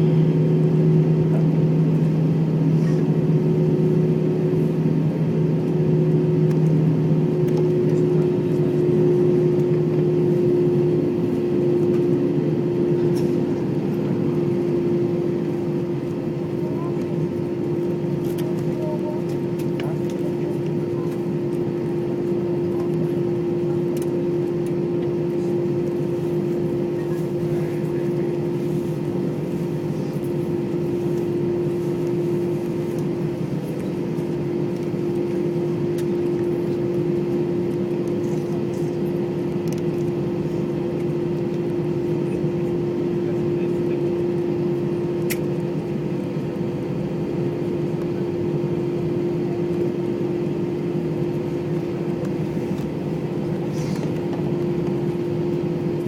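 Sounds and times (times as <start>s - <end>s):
airliner cabin rumble and hiss: 0.0s - 56.0s
mid-pitched whine: 0.0s - 56.0s.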